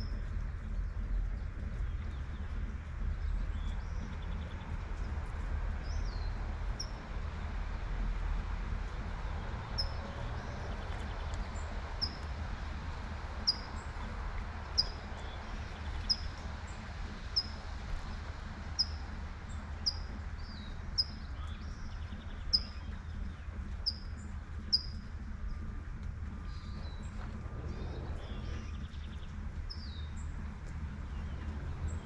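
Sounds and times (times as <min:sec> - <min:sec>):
low background rumble: 0:00.0 - 0:32.0
bird chirping: 0:18.8 - 0:25.7.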